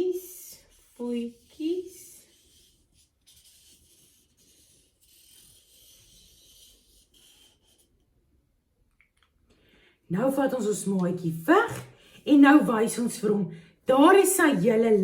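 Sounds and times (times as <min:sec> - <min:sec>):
drawing tool scratching paper: 0:00.2 - 0:08.0.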